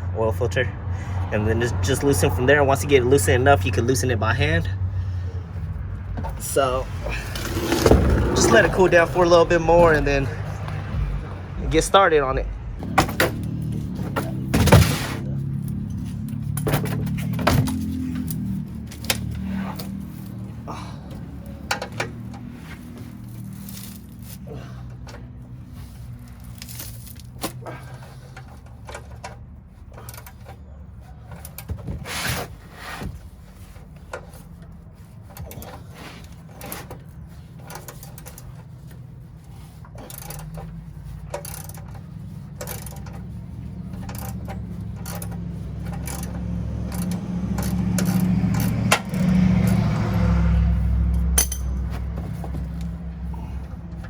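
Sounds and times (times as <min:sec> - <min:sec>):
light metallic clinks and scrapes: 0:15.2 - 0:54.0.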